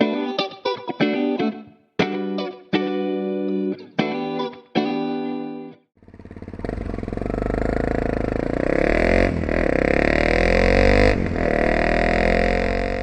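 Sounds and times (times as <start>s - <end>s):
motorcycle engine accelerating: 6.0s - 13.0s.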